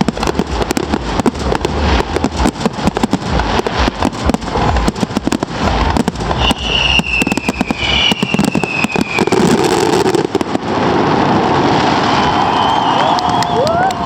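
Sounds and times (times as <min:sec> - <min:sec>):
fireworks bangs and crackles: 0:00.0 - 0:14.0
high falling whistle: 0:06.4 - 0:09.7, 0:11.8 - 0:14.0.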